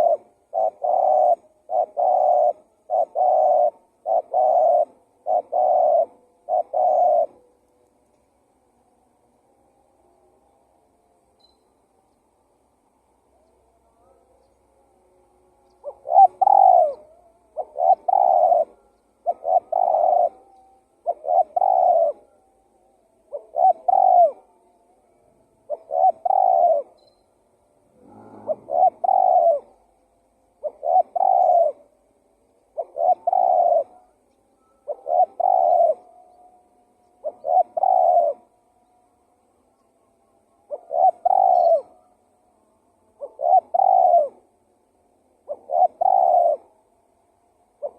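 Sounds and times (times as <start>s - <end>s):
dove cooing: 0.0s - 7.6s, 13.0s - 27.0s, 27.8s - 32.0s, 32.6s - 38.7s, 40.6s - 42.3s, 43.1s - 44.6s, 45.4s - 47.0s.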